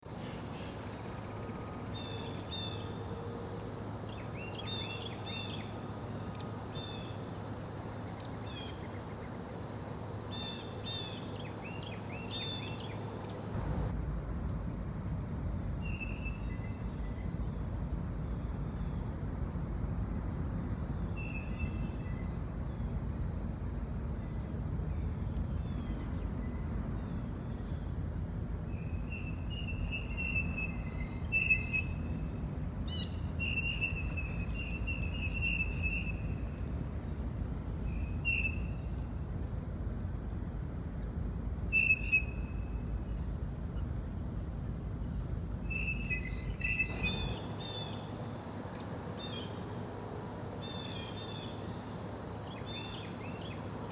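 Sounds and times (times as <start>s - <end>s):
high hiss: 13.6s - 47.4s
low outdoor rumble: 13.6s - 47.4s
small birds chirping: 13.6s - 47.4s.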